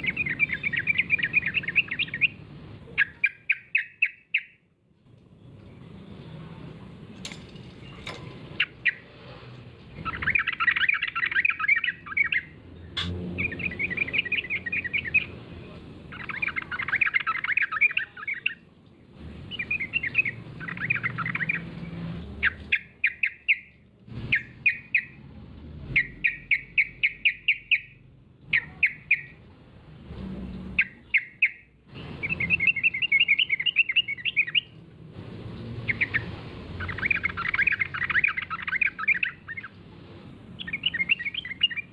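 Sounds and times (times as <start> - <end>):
bird chattering song: 0.0 - 4.6, 7.8 - 9.1, 9.9 - 18.7, 19.4 - 25.2, 25.9 - 29.4, 30.7 - 34.8, 35.8 - 39.8, 40.5 - 41.9.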